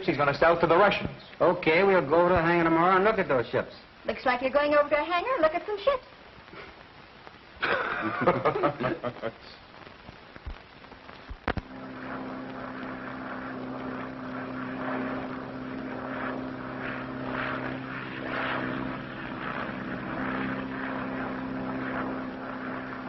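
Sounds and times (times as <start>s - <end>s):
propeller airplane engine drone: 11.4s - 23.0s.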